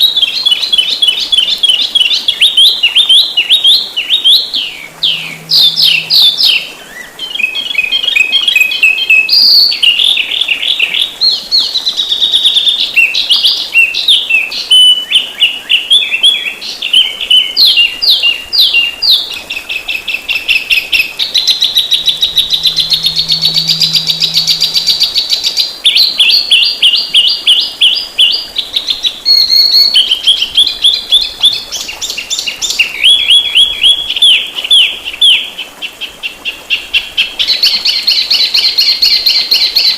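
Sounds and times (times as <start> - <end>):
songbird chirps and trills: 0.0 - 11.0, 16.3 - 35.4.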